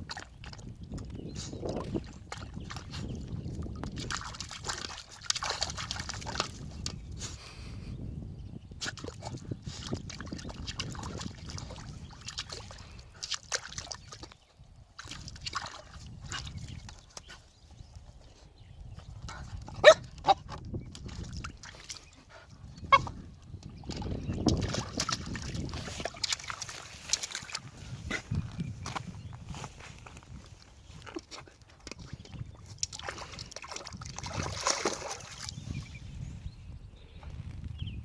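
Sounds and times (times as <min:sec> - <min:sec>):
puppy splashing in water: 0:00.0 - 0:07.2, 0:08.9 - 0:17.4, 0:20.8 - 0:28.4, 0:31.0 - 0:35.9.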